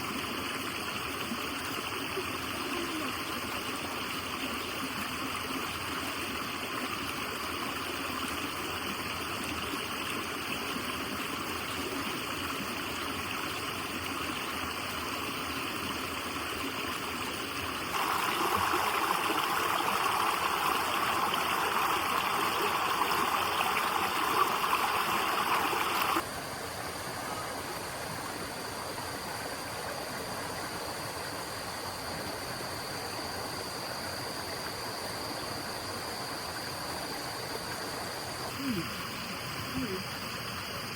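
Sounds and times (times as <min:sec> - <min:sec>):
rushing water: 0:00.0 - 0:29.7.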